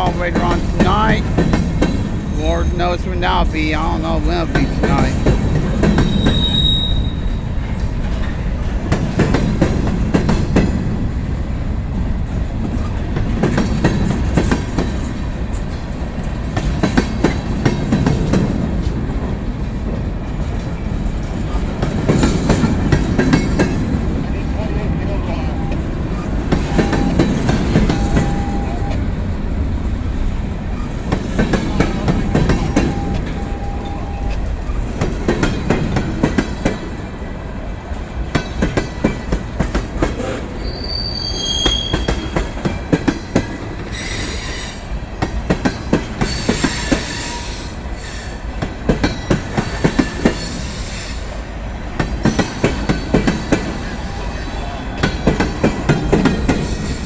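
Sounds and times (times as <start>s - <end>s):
rumble of rolling train cars: 0.0s - 57.0s
wheel flanges squealing: 40.2s - 42.4s.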